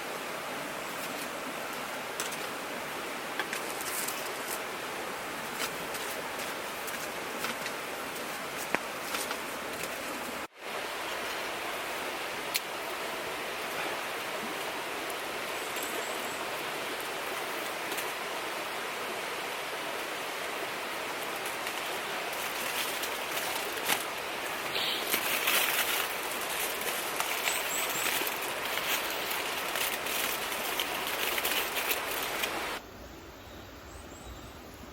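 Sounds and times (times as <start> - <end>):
river water rushing: 0.0 - 32.8
sharp clicks and crackling: 25.0 - 32.8.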